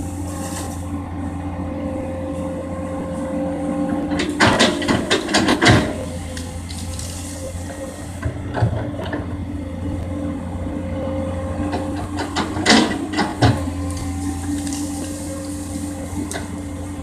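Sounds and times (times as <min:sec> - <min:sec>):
excavator diesel engine running: 0:00.0 - 0:17.0
machine clanks and knocks: 0:04.1 - 0:06.2, 0:08.2 - 0:09.3, 0:11.7 - 0:14.0.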